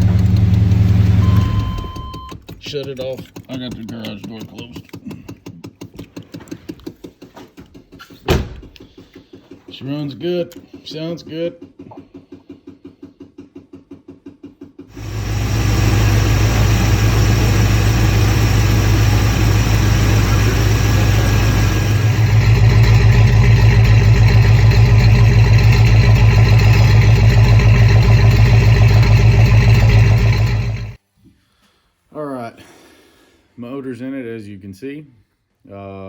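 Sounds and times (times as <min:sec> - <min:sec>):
truck engine running throaty: 0:00.0 - 0:02.2, 0:14.9 - 0:31.0
engine starter cranking: 0:00.0 - 0:07.1, 0:14.9 - 0:31.0.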